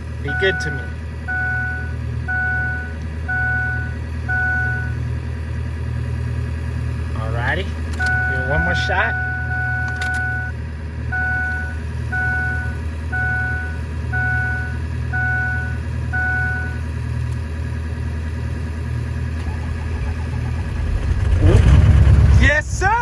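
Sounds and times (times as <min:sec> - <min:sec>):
steady low hum: 0:00.0 - 0:23.0
electronic warning chime: 0:00.3 - 0:05.0, 0:08.0 - 0:16.8.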